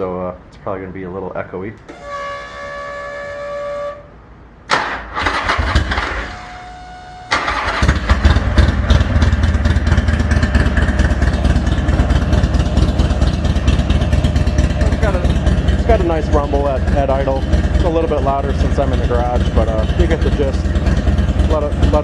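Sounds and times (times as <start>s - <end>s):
starter motor cranking: 4.7s - 6.2s
motorcycle engine idling: 7.5s - 22.0s.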